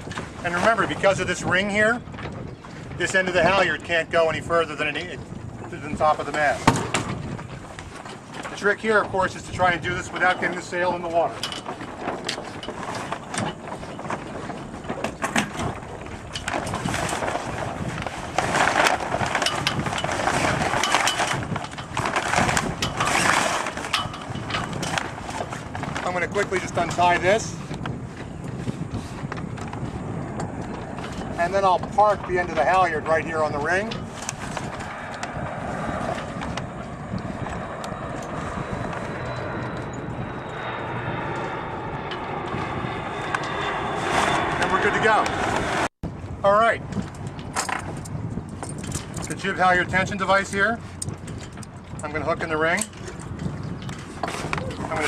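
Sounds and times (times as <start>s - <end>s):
water noise: 0.0s - 55.0s
wind: 0.0s - 55.0s
sailcloth crinkling and rustling: 5.7s - 30.0s.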